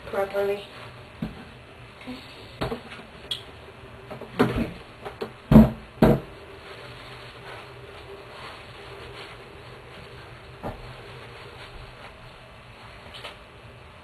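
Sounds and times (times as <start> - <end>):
knocks and rustles of handling: 4.0 - 13.4.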